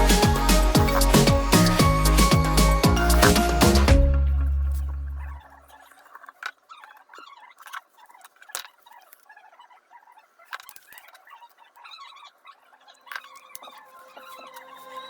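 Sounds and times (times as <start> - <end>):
small clicks and scratchy squeaks: 5.7 - 15.0.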